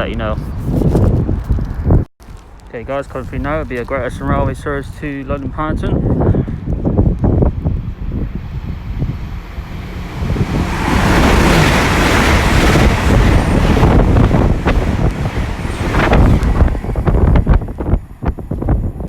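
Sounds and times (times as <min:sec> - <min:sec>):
wind buffeting microphone: 0:00.0 - 0:19.0
train rushing past: 0:07.4 - 0:19.0.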